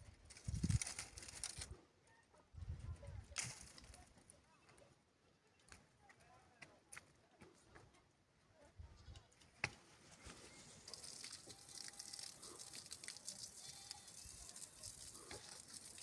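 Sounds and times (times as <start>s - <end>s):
faint livestock bleating: 11.3s - 15.6s.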